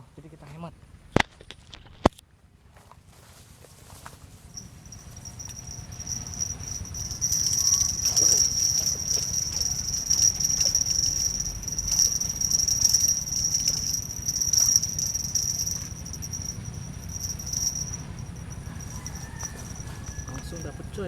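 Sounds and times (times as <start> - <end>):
crickets chirring: 4.6 - 21.0.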